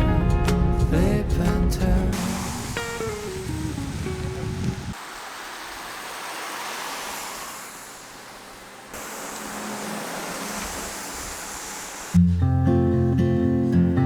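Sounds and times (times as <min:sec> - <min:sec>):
steady rushing outdoor noise: 0:01.9 - 0:12.4
acoustic guitar music: 0:12.2 - 0:14.0.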